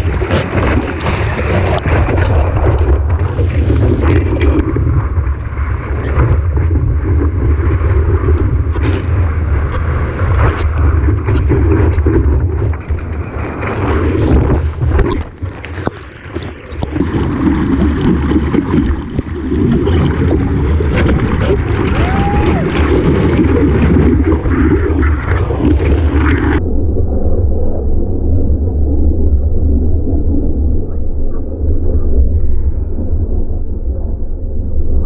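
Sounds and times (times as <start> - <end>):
rushing ocean water: 0.0 - 26.6
wind buffeting microphone: 0.0 - 26.6.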